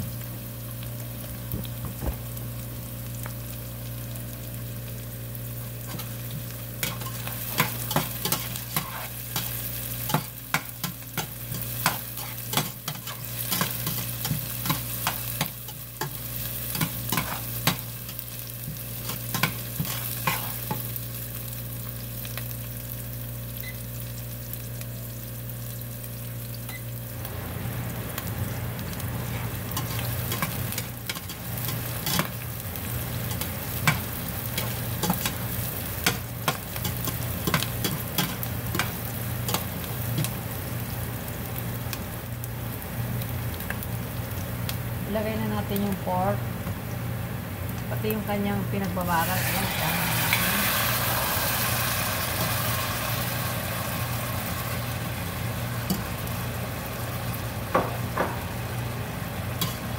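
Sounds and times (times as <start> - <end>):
onion and garlic sizzling in oil: 0.0 - 59.9.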